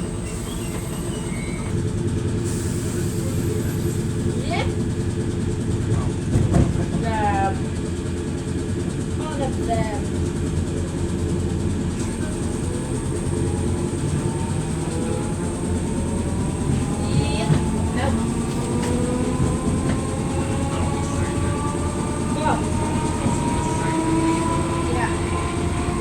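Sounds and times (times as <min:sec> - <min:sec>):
traction motor whine: 0:00.0 - 0:01.8, 0:11.9 - 0:26.0
train wheels rumbling: 0:00.0 - 0:26.0.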